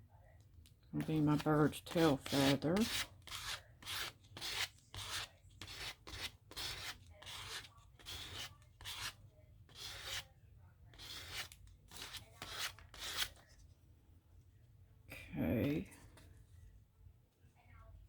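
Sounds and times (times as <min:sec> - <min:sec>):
paper being rubbed: 0:01.4 - 0:10.2, 0:11.0 - 0:13.4.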